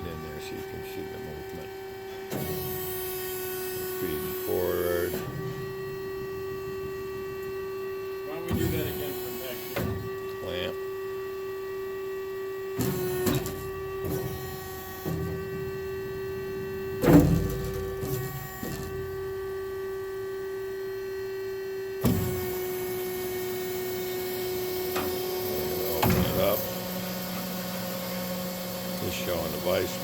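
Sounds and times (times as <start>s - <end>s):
hydraulic system humming: 0.0s - 30.0s
noisy mechanical running: 0.0s - 30.0s
machine clunks: 16.9s - 19.1s, 25.9s - 26.4s.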